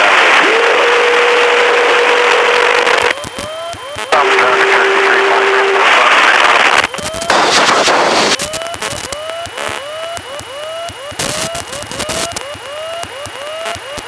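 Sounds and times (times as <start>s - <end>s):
faint high whine: 0.0s - 14.0s
radio static hiss: 0.0s - 14.0s
clicks with rising chirps: 8.4s - 14.0s.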